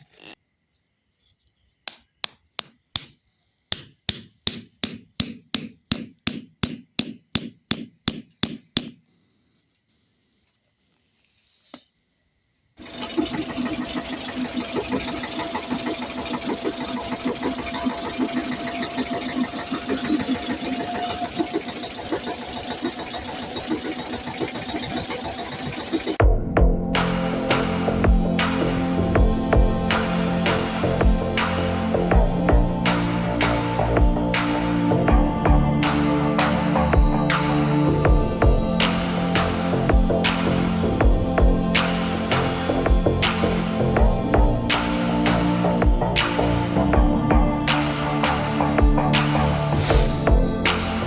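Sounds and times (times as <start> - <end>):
small motor running: 12.8 - 26.2.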